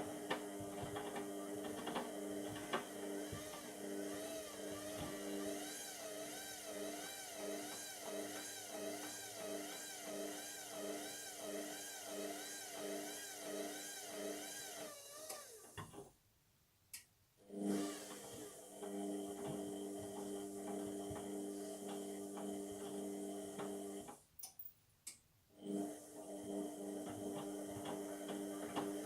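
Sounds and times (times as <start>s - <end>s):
washing machine drum motor whine: 0.0s - 14.4s.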